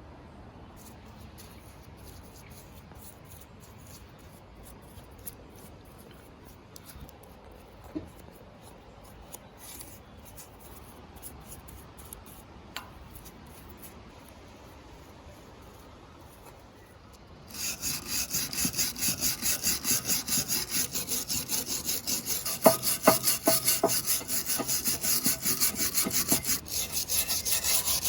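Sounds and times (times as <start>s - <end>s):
hand tool scraping: 17.4s - 28.0s.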